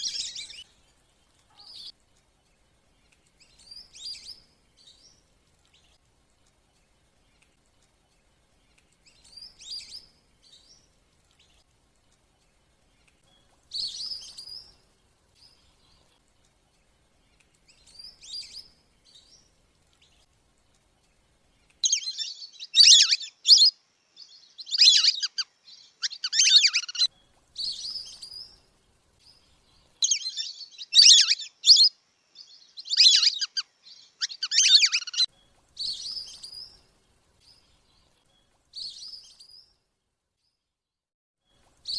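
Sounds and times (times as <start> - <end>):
duck whistling calls: 21.8 - 23.7, 24.7 - 25.4, 26.0 - 27.1, 30.0 - 31.9, 32.9 - 33.6, 34.2 - 35.2.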